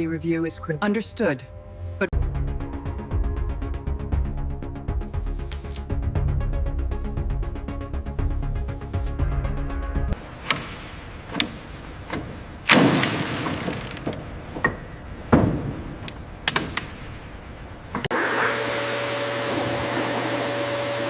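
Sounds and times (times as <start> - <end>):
sharp metallic knocks and clanks: 10.4 - 17.2.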